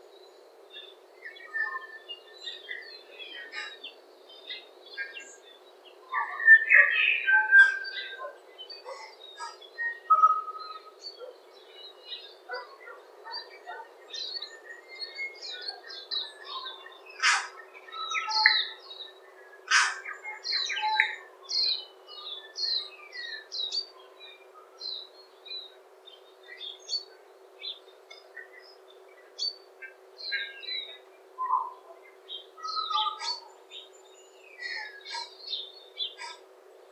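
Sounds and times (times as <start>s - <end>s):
songbirds singing and chirping: 0.0s - 36.9s.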